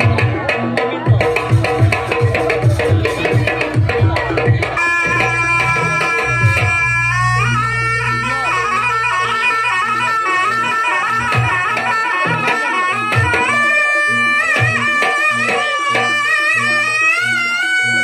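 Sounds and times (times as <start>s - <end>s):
hand drums beating: 0.0s - 16.2s
shrill reed wind instrument: 4.7s - 18.0s
low drone: 4.8s - 11.2s.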